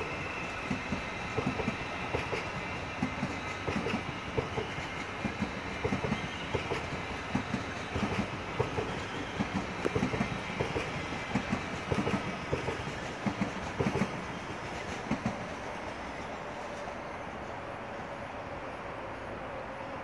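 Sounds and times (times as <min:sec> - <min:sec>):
train wheels knocking over rail joints: 0:00.0 - 0:15.5
train steady rumble: 0:00.0 - 0:20.0.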